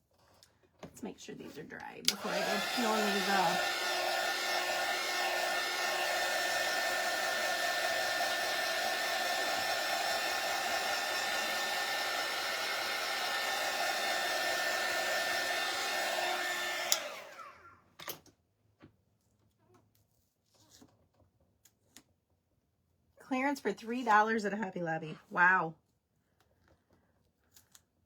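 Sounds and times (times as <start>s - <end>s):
hot-air blower whining: 2.0s - 17.8s.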